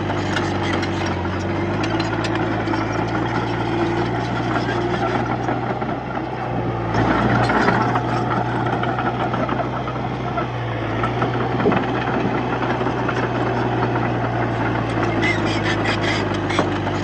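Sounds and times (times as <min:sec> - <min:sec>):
bulldozer diesel engine pushing soil: 0:00.0 - 0:17.0.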